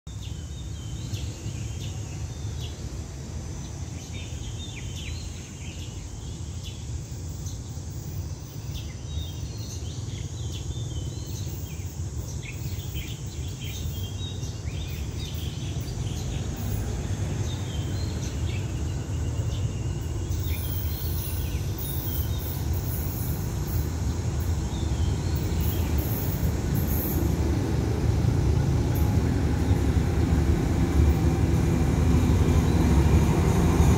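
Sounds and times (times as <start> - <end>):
birds chirping: 8.3 - 33.9
diesel locomotive rumble: 14.3 - 33.9.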